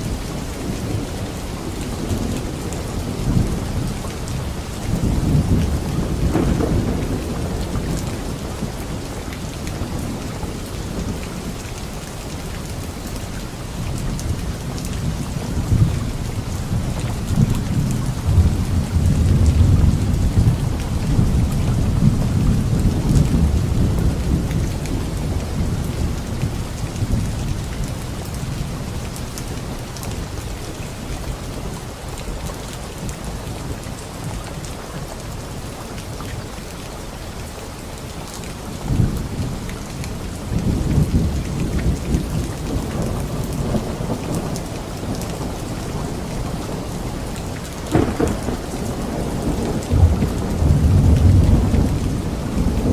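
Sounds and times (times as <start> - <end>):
light rain on leaves: 0.0 - 52.9
rolling thunder: 0.1 - 11.5, 14.3 - 28.8, 40.4 - 52.9.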